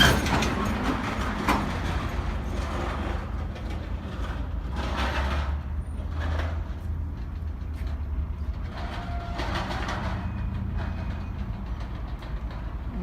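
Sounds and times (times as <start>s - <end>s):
diesel locomotive rumbling: 0.0s - 13.0s.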